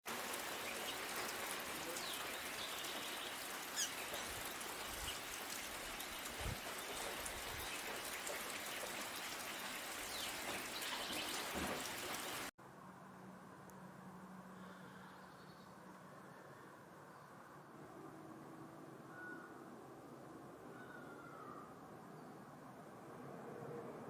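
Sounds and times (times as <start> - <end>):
steady rain: 0.0 - 12.5
birds chirping: 0.2 - 12.5.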